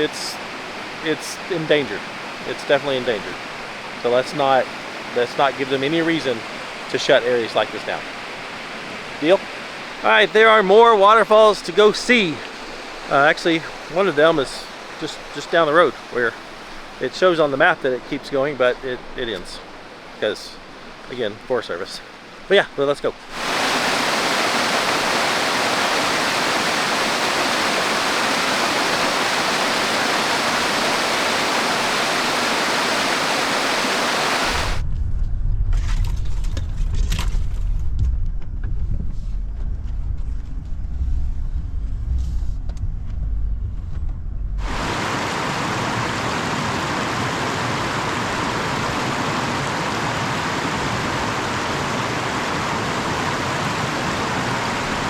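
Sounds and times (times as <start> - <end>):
waterfall rushing roar: 0.0 - 20.9, 23.3 - 34.8, 44.6 - 55.0
off-road vehicle engine rumble: 35.0 - 44.6.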